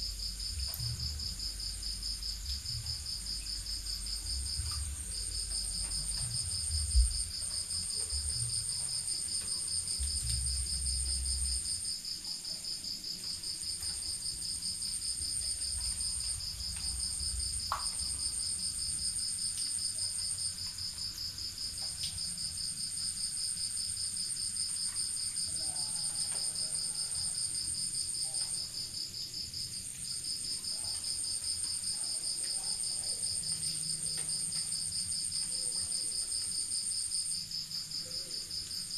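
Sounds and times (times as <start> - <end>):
low rumbling: 0.0 - 8.8
crickets trilling: 0.0 - 38.9
low thump: 0.6 - 1.4, 4.3 - 8.6.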